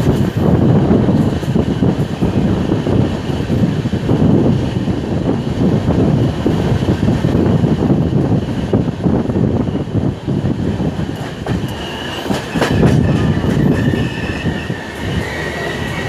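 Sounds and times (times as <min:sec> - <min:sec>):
train rumbling and rattling: 0:00.0 - 0:16.0
wind buffeting microphone: 0:00.0 - 0:16.0.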